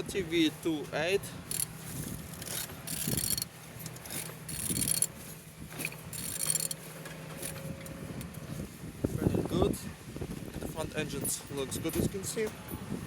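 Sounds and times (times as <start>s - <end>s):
diesel engine running: 0.0s - 10.0s
metallic jangling rattle: 1.5s - 7.7s.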